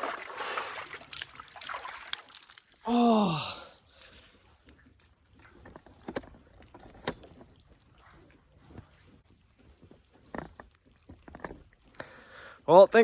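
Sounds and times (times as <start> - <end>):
water sloshing: 0.0 - 2.8, 3.9 - 12.6
short water splashes: 0.0 - 3.1.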